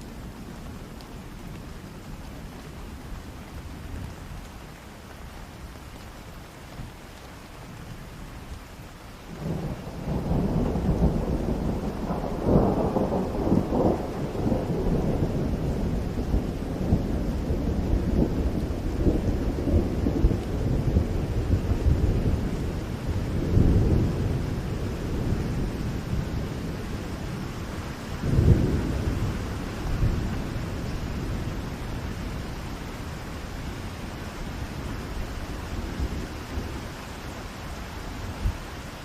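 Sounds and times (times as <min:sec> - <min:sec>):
steady rain falling: 0:00.0 - 0:39.0
thunder rumbling: 0:09.3 - 0:37.5.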